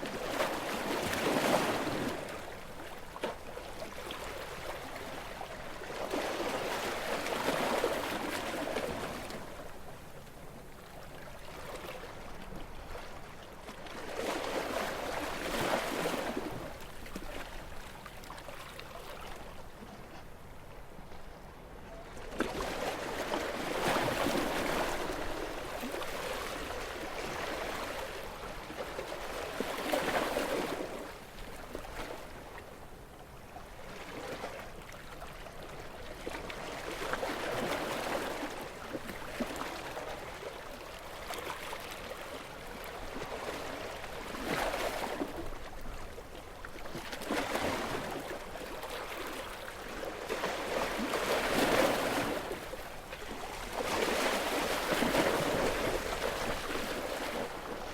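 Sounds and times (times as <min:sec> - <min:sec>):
small waves washing in: 0:35.9 - 0:57.9.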